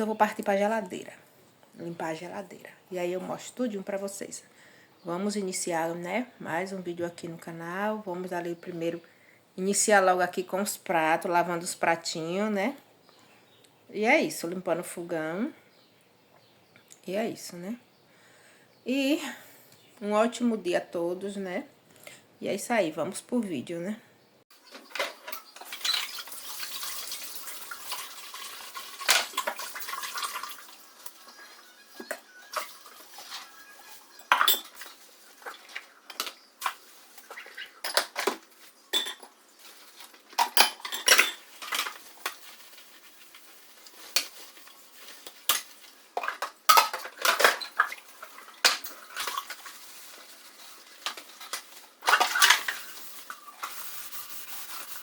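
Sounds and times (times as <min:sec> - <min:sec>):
dishes clinking and clattering: 0:24.7 - 0:31.3, 0:34.2 - 0:39.3, 0:40.4 - 0:42.0, 0:45.5 - 0:49.6, 0:51.0 - 0:52.9
tap water running: 0:25.2 - 0:31.4.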